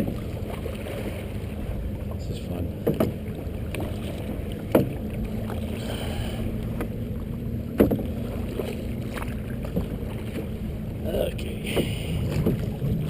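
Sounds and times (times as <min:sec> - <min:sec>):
canoe paddling on wavy water: 0:00.0 - 0:13.0
wind rumble on microphone: 0:00.0 - 0:13.0
sharp knocks: 0:02.8 - 0:03.2, 0:07.7 - 0:08.1.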